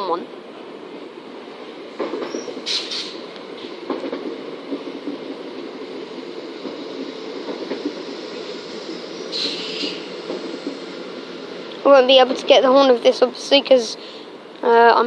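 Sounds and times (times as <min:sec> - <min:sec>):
train rumbling: 0:00.0 - 0:15.0
wheels clicking over rail joints: 0:01.9 - 0:10.9.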